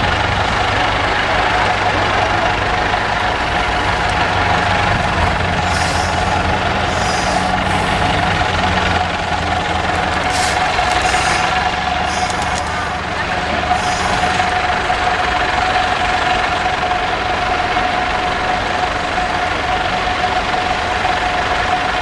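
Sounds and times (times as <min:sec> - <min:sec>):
truck diesel engine running: 0:00.0 - 0:22.0
air releasing hisses: 0:05.1 - 0:09.0, 0:10.0 - 0:14.6.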